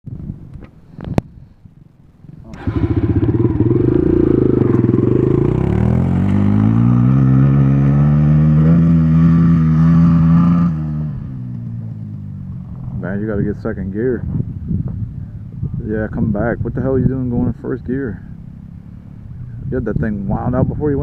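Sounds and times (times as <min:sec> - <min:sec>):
dirt bike engine revving: 0:02.5 - 0:11.5.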